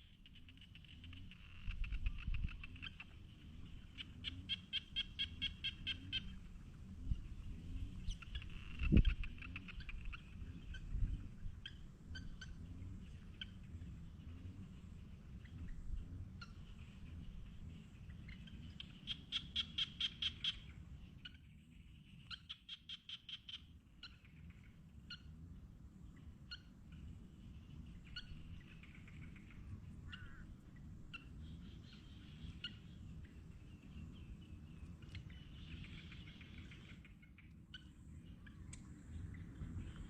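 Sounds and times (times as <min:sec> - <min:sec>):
faint continuous trill: 0:00.0 - 0:40.0.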